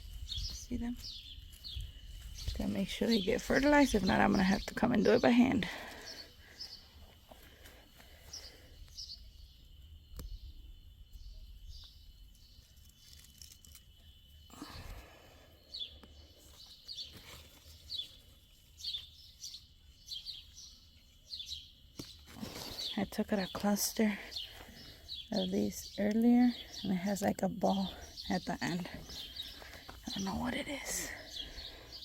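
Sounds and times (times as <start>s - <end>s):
small birds chirping: 0.0s - 32.0s
brief rustle: 12.8s - 13.9s.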